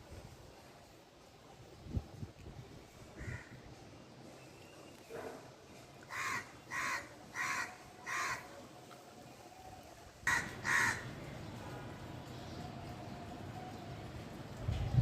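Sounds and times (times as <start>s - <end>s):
crow cawing: 3.2s - 3.6s, 6.1s - 8.4s, 10.3s - 11.2s.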